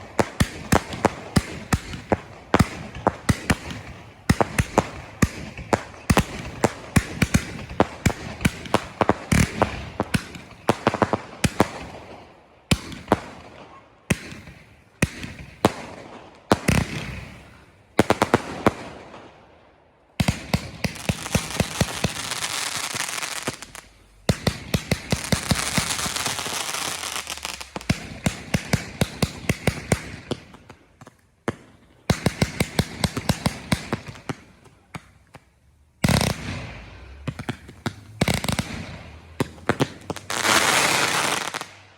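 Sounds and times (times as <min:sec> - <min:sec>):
fireworks crackling hiss: 0:20.6 - 0:30.0, 0:35.8 - 0:41.8.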